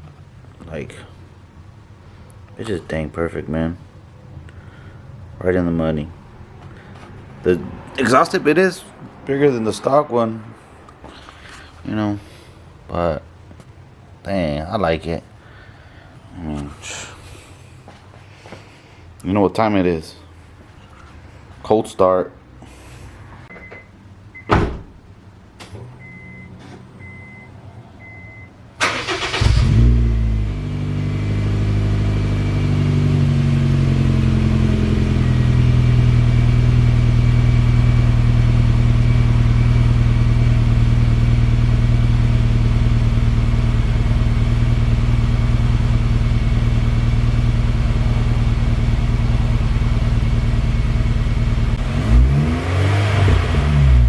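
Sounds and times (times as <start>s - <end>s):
car engine starting and idling: 25.2s - 54.0s
faint beeps: 26.0s - 28.6s
engine revving: 28.8s - 54.0s.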